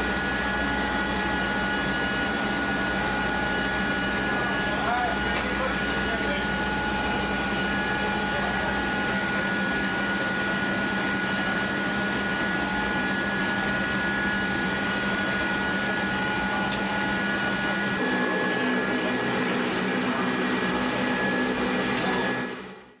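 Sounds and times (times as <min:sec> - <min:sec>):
jet engines rushing and whining: 0:00.0 - 0:23.0.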